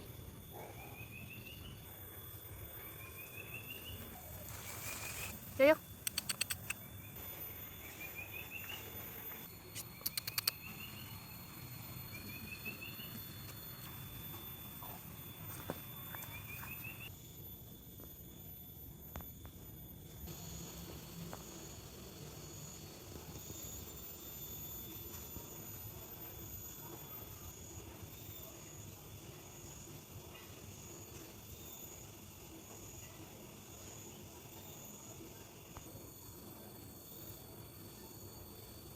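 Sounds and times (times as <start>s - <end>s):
high insect-like hum: 0.0s - 38.9s
bird singing: 0.9s - 7.2s, 7.8s - 13.9s, 16.0s - 17.1s
thin high steady tones: 2.0s - 8.0s
quick clicks: 4.6s - 6.8s, 9.8s - 10.6s.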